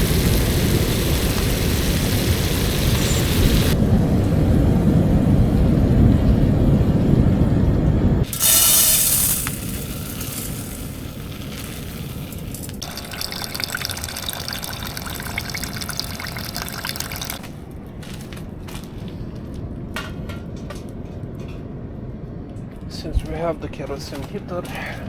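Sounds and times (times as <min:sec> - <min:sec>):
constant low rumble: 0:00.0 - 0:08.5, 0:16.4 - 0:25.0
liquid pouring into pot: 0:08.3 - 0:17.4.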